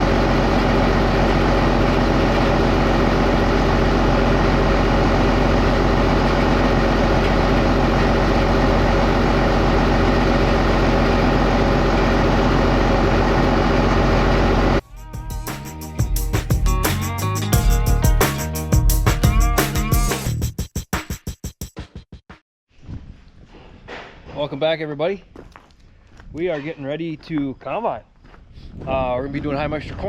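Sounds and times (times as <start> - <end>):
heavy engine running: 0.0 - 18.4.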